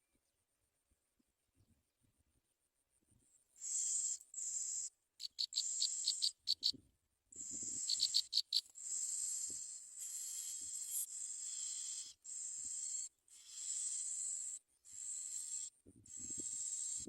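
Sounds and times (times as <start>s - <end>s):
nestlings hissing begging calls: 3.6s - 6.7s, 7.4s - 17.0s
sharp bird chips: 3.6s - 6.8s, 7.4s - 17.0s.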